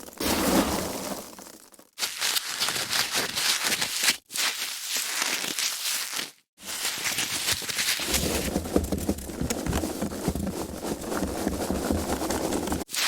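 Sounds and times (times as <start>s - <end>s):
foam packaging crackling: 2.0s - 13.0s.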